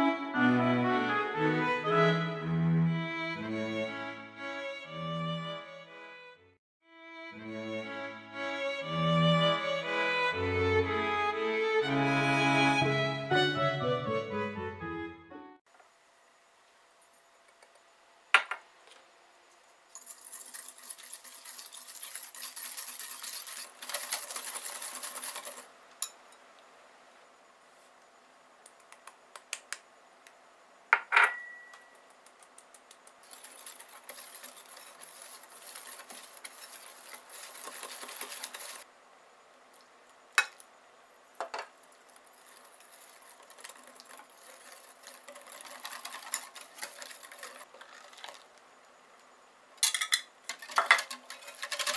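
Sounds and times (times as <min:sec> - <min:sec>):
utensil scraping bowl: 0:19.9 - 0:26.2, 0:33.2 - 0:38.8, 0:42.1 - 0:48.5, 0:50.5 - 0:51.9
utensil clinking bowl: 0:49.8 - 0:51.9.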